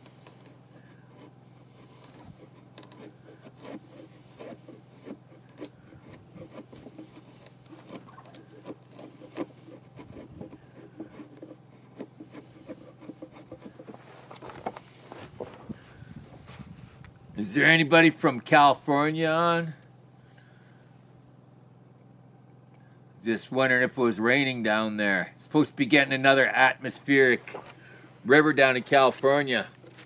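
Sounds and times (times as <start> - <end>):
hand tool scraping wood: 0.0 - 16.9, 26.8 - 30.0
steady low hum: 0.0 - 30.0.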